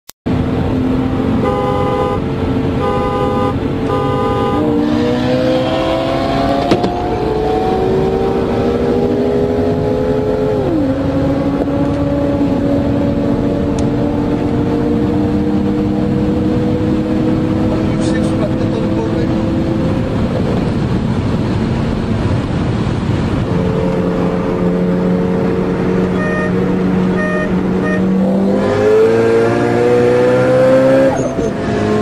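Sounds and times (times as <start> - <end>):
car engines accelerating: 0.3 - 32.0
car horn toots: 1.4 - 4.8, 26.1 - 28.2.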